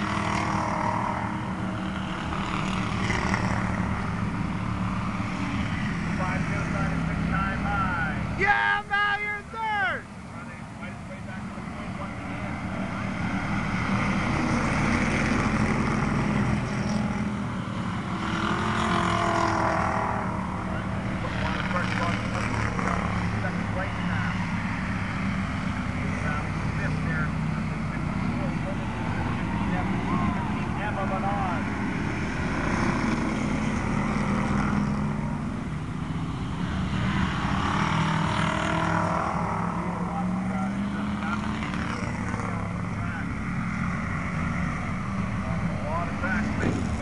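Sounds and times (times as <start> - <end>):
race car engines running: 0.0 - 47.0.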